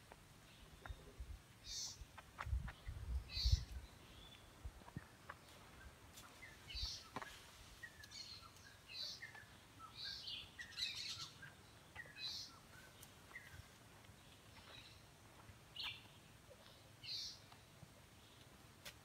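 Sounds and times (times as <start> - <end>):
birds chirping and whistling: 2.7 - 4.5, 6.4 - 13.7.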